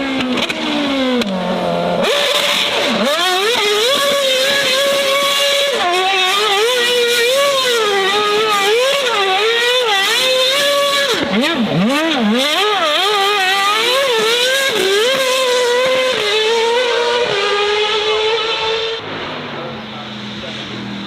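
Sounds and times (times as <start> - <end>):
car engine revving hard: 0.0 - 21.0.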